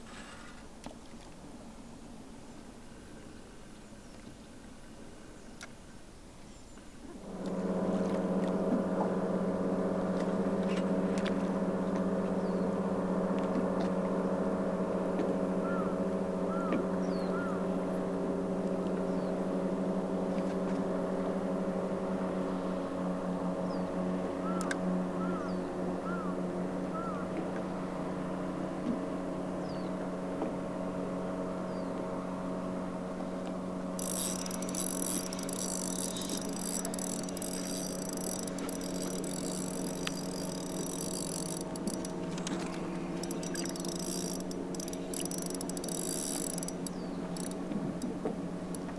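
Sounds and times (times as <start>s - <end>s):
outboard motor running: 7.2s - 48.9s
fast high-pitched ticking: 34.0s - 47.6s.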